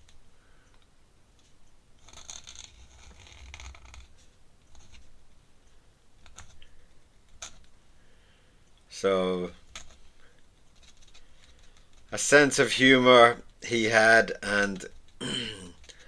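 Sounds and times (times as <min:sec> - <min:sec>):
pen scratching across paper: 0:02.0 - 0:05.1.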